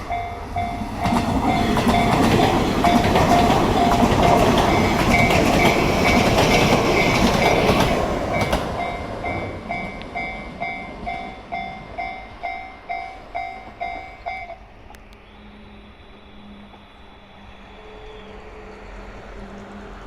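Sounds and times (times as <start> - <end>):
two-tone crossing warning bell: 0.0 - 20.0
train wheels clacking over rail joints: 0.8 - 11.3.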